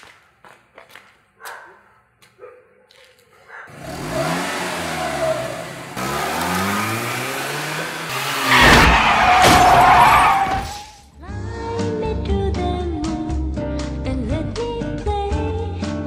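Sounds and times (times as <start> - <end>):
faint footsteps: 0.0 - 3.6
car engine revving: 3.7 - 10.6
harsh burst with squeal: 6.6 - 11.0.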